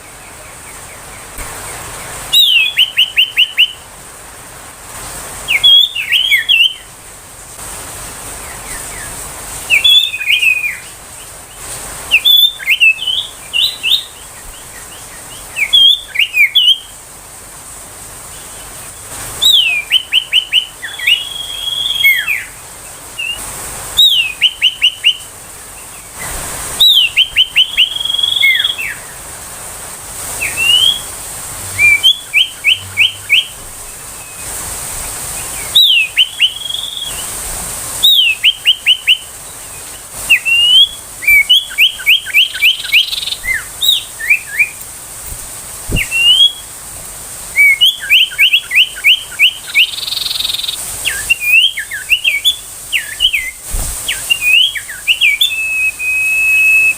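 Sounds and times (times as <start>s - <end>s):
bird singing whistled phrases: 2.3s - 3.8s, 5.5s - 6.9s, 9.7s - 11.0s, 12.1s - 14.2s, 14.8s - 16.9s, 19.4s - 22.6s, 23.2s - 23.4s, 24.0s - 25.3s, 26.8s - 29.1s, 30.4s - 31.1s, 31.7s - 34.5s, 35.4s - 37.3s, 38.0s - 39.3s, 40.3s - 44.8s, 45.9s - 46.7s, 47.6s - 56.9s.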